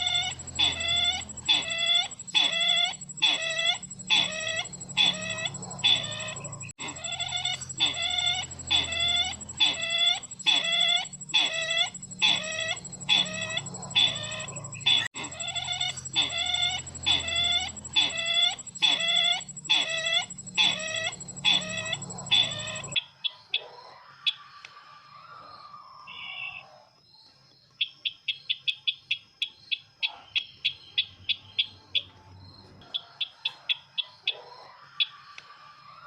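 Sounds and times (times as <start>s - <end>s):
bird call repeating: 0.0s - 23.0s.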